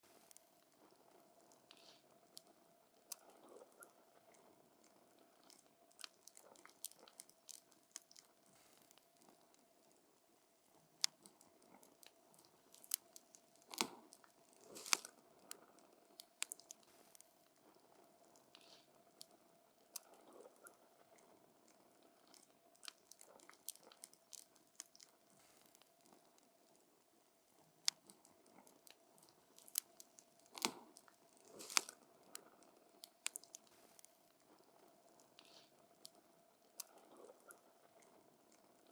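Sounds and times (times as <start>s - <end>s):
campfire crackling and popping: 12.3s - 15.1s, 27.9s - 32.4s.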